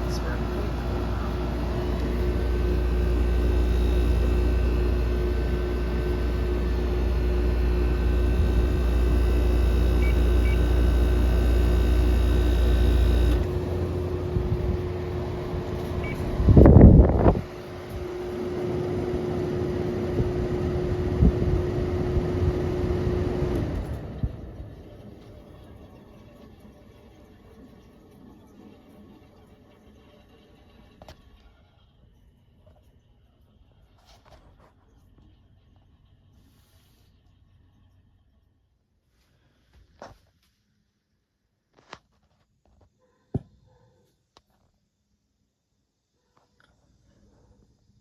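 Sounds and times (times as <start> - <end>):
air conditioner fan running: 0.0 - 26.4
air conditioner compressor humming: 0.0 - 26.5.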